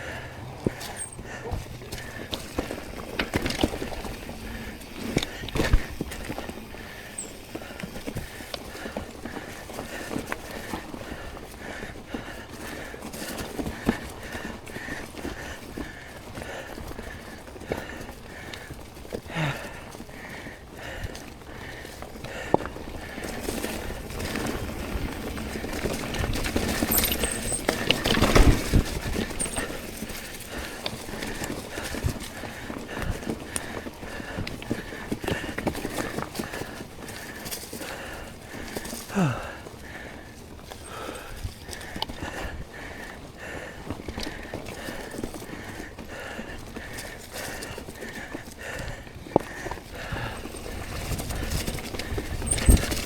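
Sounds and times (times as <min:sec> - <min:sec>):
bike rattling and clicking: 0:00.0 - 0:53.0
bike tyres on dirt trail: 0:00.0 - 0:53.0
fast hard breathing: 0:00.0 - 0:53.0.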